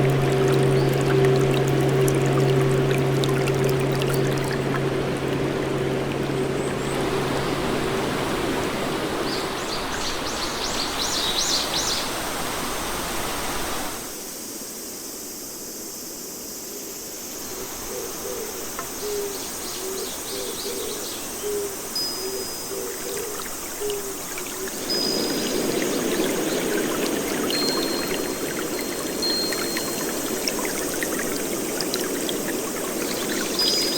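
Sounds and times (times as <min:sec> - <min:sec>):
rushing water: 0:00.0 - 0:14.3, 0:18.5 - 0:33.9
songbirds chirping: 0:18.7 - 0:33.9.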